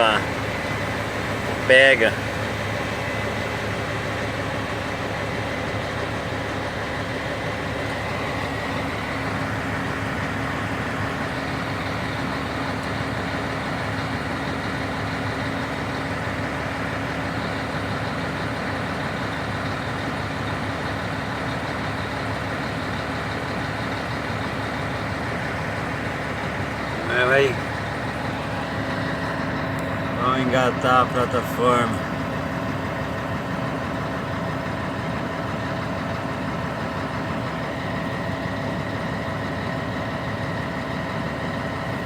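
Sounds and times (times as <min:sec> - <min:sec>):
truck diesel engine running: 0:00.0 - 0:42.0.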